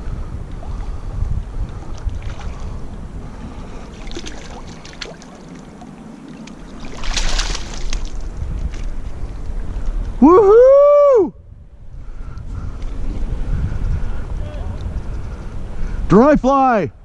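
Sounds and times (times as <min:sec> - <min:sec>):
wind rumbling on microphone: 0:00.0 - 0:17.0
water splashing: 0:01.8 - 0:09.0
river water flowing: 0:01.8 - 0:10.2.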